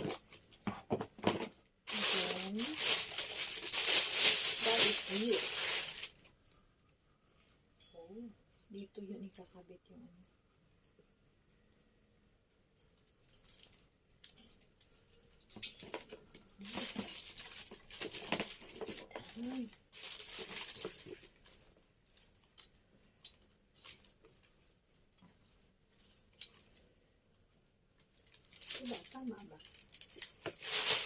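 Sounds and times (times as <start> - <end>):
rustling and scraping: 0.0 - 6.4, 13.2 - 26.9, 28.0 - 31.0.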